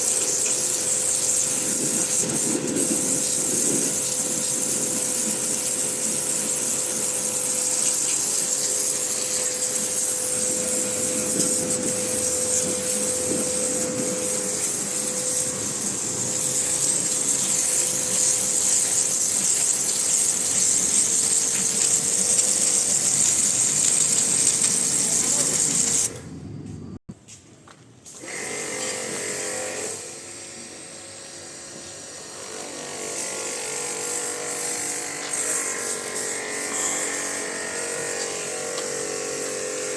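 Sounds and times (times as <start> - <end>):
pressure washer running: 0.0 - 26.2, 28.2 - 39.9
water jet hissing: 0.0 - 26.2, 33.2 - 39.9
higher-pitched motor whine: 0.4 - 24.0.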